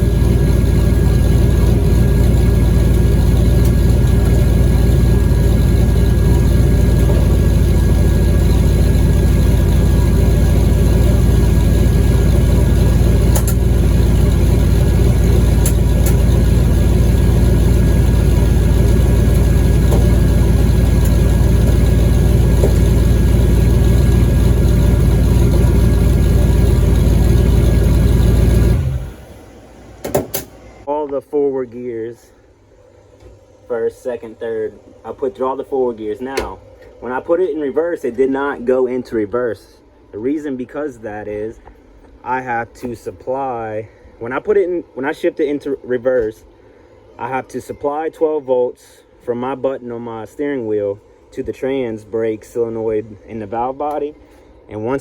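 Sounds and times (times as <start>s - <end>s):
wheels spinning: 0.0s - 29.4s
car engine idling: 0.0s - 30.9s.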